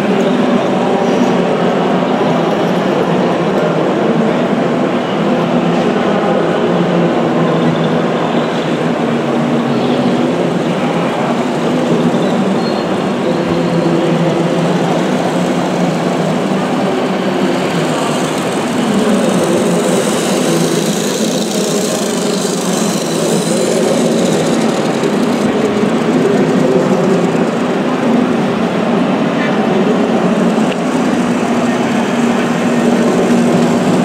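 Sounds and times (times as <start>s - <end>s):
toy machine motors humming: 10.0s - 28.4s, 30.0s - 34.0s.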